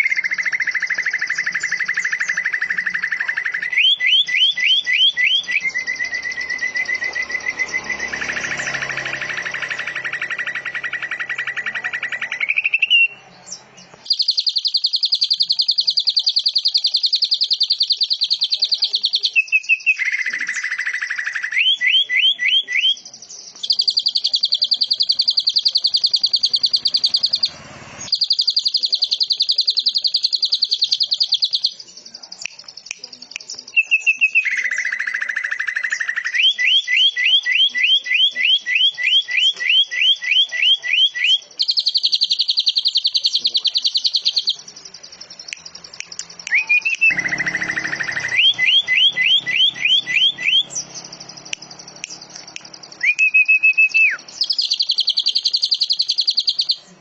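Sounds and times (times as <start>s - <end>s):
bird rising chirps: 0.0s - 32.9s, 33.6s - 57.0s
songbird fast trills: 0.0s - 57.0s.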